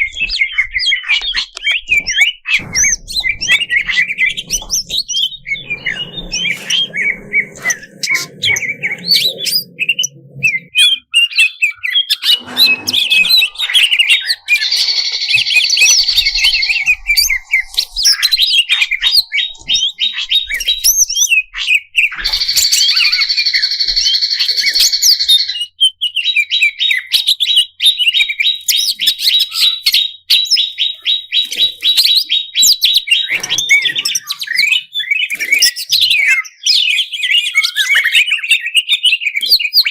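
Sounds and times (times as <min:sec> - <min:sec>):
bird singing rapid chirps and trills: 0:00.0 - 0:39.9
low hum: 0:12.3 - 0:20.7.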